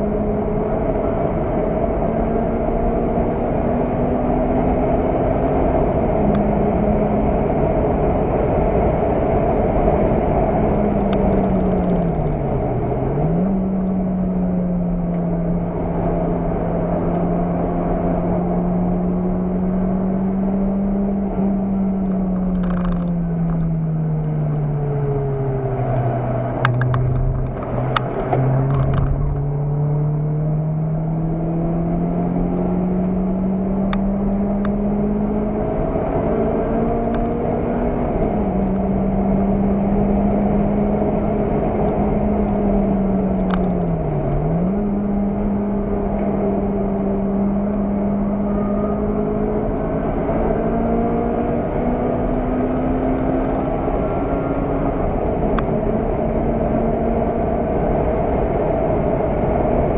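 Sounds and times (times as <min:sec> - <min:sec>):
car engine running hard: 0:00.0 - 0:59.9.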